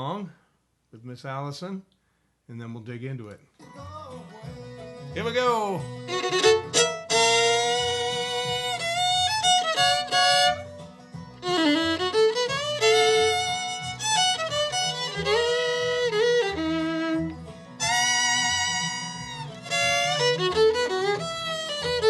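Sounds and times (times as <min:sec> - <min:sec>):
guitar and bass rhythm: 0:03.2 - 0:22.0
bluegrass fiddle: 0:04.5 - 0:22.0
second fiddle: 0:05.2 - 0:22.0.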